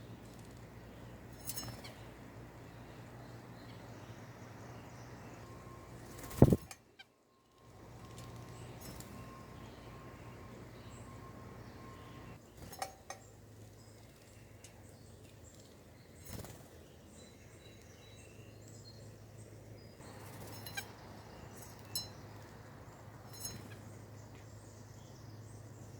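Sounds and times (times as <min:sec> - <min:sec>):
faint bird chirps: 0:00.0 - 0:25.9
clinks at a bird feeder: 0:01.3 - 0:02.1, 0:08.0 - 0:09.4, 0:12.6 - 0:13.4, 0:20.0 - 0:22.6, 0:23.2 - 0:24.5
steady low hum: 0:07.4 - 0:16.2.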